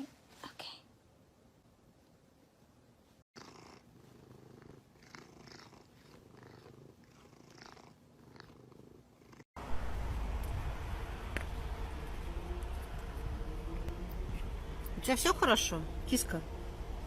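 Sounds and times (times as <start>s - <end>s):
cat purring: 3.4s - 9.5s.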